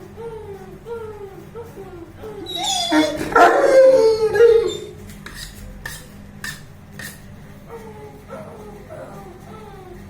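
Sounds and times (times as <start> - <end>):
dog howling: 0.2 - 5.0, 7.7 - 10.0.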